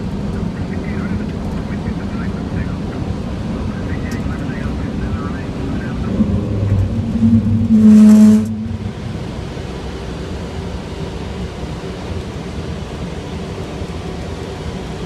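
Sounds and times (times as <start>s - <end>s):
jet taking off: 0.4s - 11.2s
loud pitched sound: 5.9s - 9.7s.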